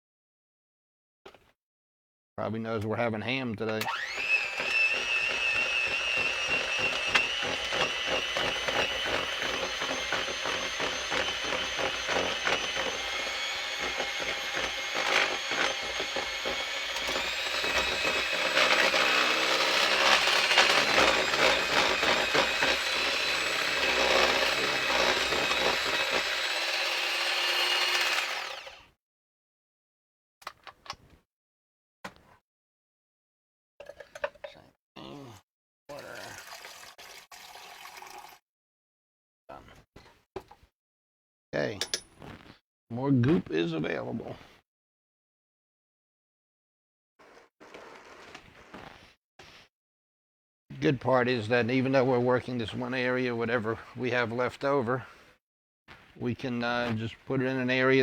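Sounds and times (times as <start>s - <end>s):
electric mixer motor whining: 3.8s - 28.9s.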